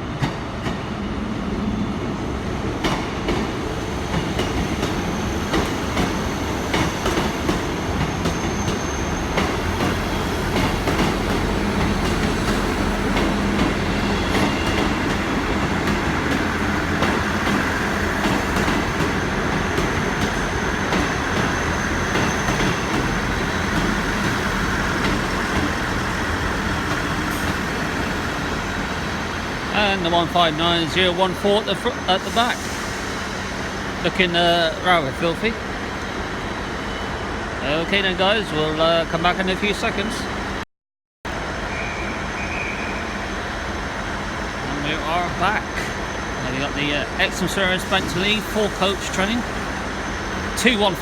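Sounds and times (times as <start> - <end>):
diesel train engines running: 0.0 - 40.6, 41.3 - 51.0
faint high wheel squeal: 8.1 - 10.3, 20.0 - 23.8, 41.7 - 43.5.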